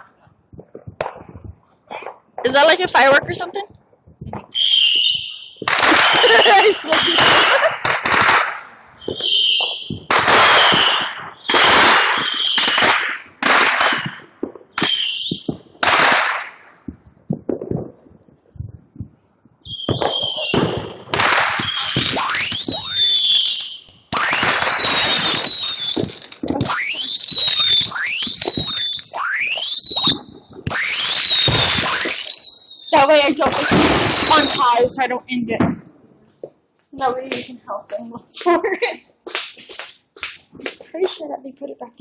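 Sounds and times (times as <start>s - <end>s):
fireworks crackling bursts: 0.0s - 42.0s
fireworks falling whistles: 4.3s - 17.9s, 19.6s - 34.8s, 38.3s - 41.2s.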